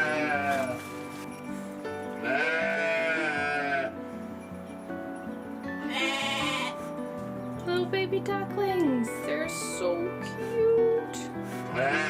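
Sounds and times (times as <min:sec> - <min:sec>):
sheep bleating: 0:00.0 - 0:00.8, 0:02.2 - 0:04.0, 0:05.8 - 0:06.8, 0:11.7 - 0:12.0
background music: 0:00.0 - 0:12.0.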